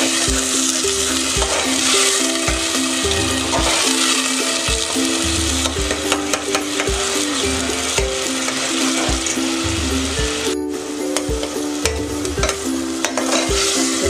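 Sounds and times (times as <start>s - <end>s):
background music with a beat: 0.0s - 14.0s
food sizzling in a pot: 0.0s - 14.0s
metal spoon scraping a pot: 12.4s - 13.9s.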